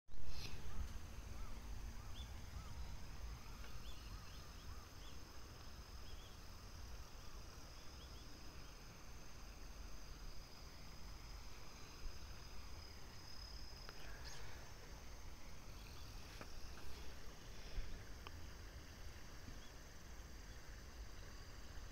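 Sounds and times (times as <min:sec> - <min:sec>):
low wind rumble: 0:00.2 - 0:21.9
small bird chirping: 0:00.3 - 0:08.9, 0:11.6 - 0:17.2, 0:19.4 - 0:21.6.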